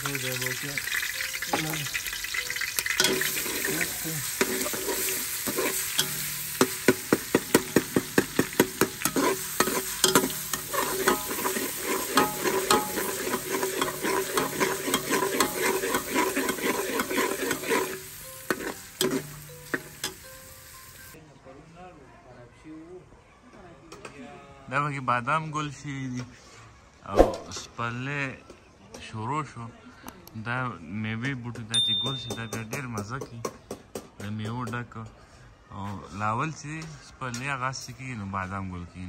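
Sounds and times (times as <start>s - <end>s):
food frying in oil: 0.0s - 21.2s
metal spoon scraping and knocking pot: 2.8s - 20.3s.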